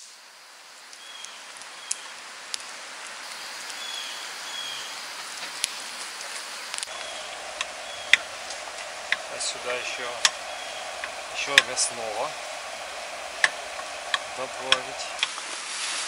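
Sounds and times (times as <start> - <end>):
light rain pattering: 0.0 - 16.0
water drips ticking: 6.8 - 15.4.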